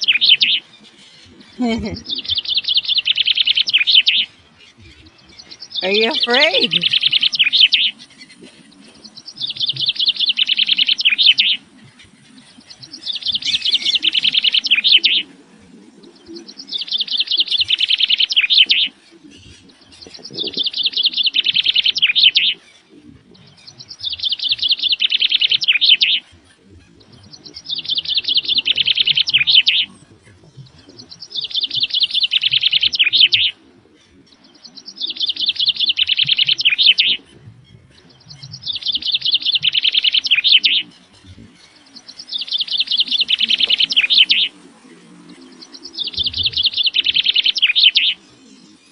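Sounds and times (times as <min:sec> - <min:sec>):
bird chattering call: 0:05.5 - 0:08.0, 0:42.0 - 0:44.5.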